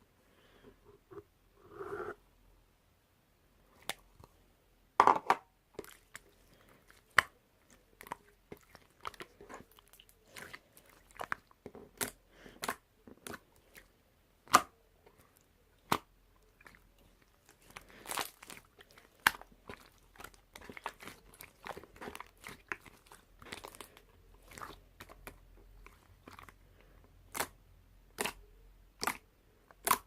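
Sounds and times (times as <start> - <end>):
slime squishing with sticky pops: 5.8 - 26.6, 27.3 - 30.0
slime snapping: 28.2 - 28.4, 29.8 - 30.0.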